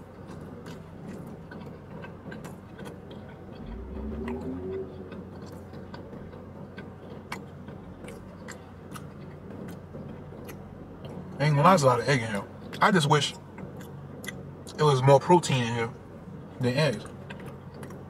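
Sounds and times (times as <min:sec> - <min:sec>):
man chewing with mouth clicks: 0:00.0 - 0:11.4, 0:13.6 - 0:14.8, 0:17.0 - 0:18.0
short rising hum: 0:03.5 - 0:06.3.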